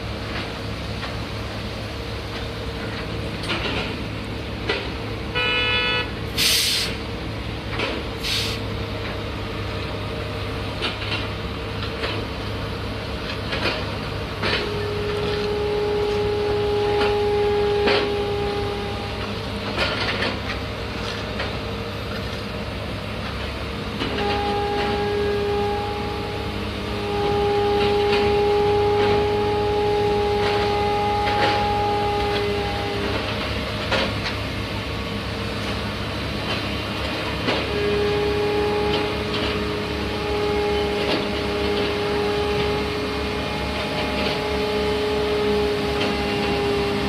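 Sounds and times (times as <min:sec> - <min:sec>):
construction machinery humming: 0:00.0 - 0:47.0
two-tone horn: 0:04.7 - 0:06.8, 0:14.4 - 0:20.4, 0:23.9 - 0:34.2, 0:36.5 - 0:47.0.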